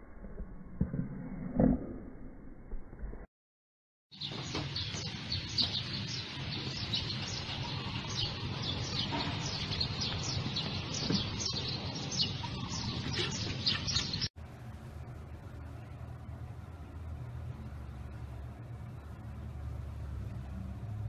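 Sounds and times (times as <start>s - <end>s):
small birds chirping rapidly: 4.1s - 14.3s
low outdoor hum: 4.2s - 21.0s.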